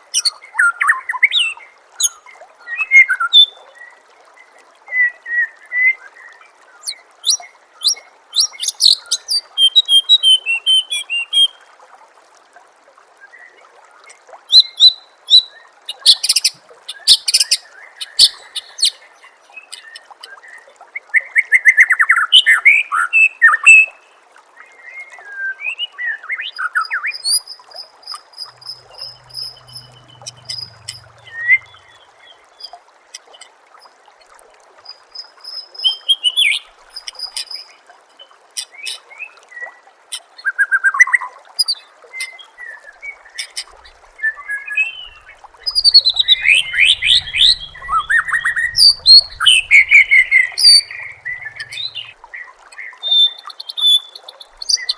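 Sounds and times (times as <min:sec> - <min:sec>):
trickling water: 0:00.0 - 0:54.9
bird singing varied phrases: 0:14.5 - 0:20.6, 0:25.3 - 0:32.8, 0:44.2 - 0:54.9.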